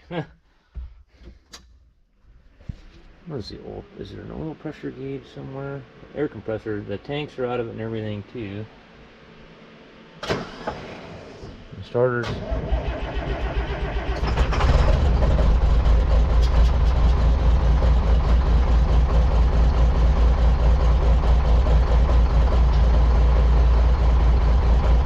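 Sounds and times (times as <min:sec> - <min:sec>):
diesel engine starting and running: 0:10.2 - 0:25.0.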